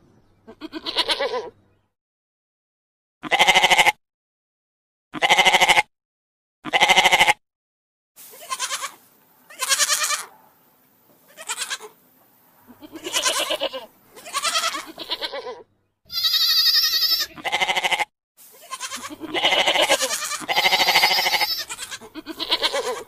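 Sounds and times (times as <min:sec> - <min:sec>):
goats bleating: 0:00.5 - 0:01.5, 0:03.2 - 0:03.9, 0:05.2 - 0:05.9, 0:06.6 - 0:07.4, 0:08.3 - 0:10.3, 0:11.3 - 0:12.0, 0:12.7 - 0:23.0.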